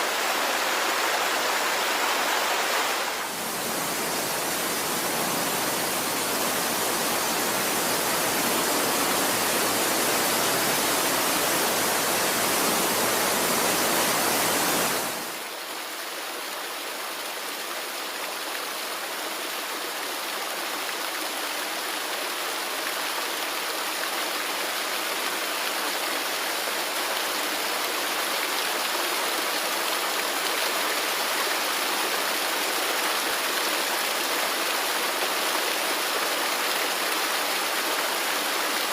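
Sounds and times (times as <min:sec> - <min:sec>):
river water rushing: 0:00.0 - 0:15.6.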